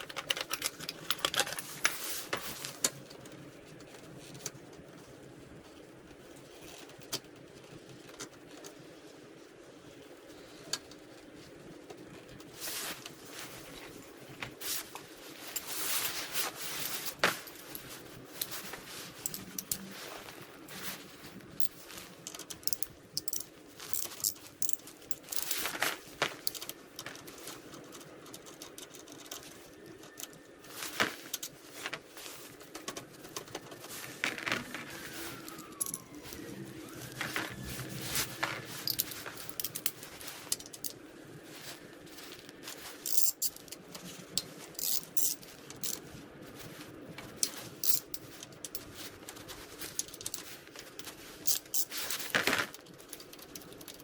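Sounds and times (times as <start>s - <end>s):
metal tools clinking and scraping: 14.6s - 36.4s, 37.1s - 54.0s.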